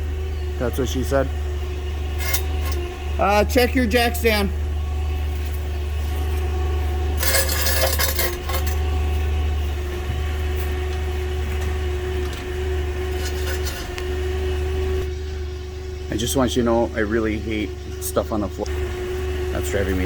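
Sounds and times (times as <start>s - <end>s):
forklift engine humming: 0.0s - 20.0s
metallic clinking and clattering: 2.2s - 2.8s, 7.2s - 8.8s, 13.1s - 14.0s.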